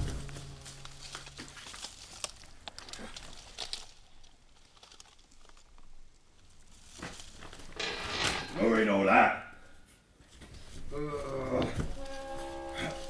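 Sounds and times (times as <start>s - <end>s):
low hum: 0.0s - 2.4s.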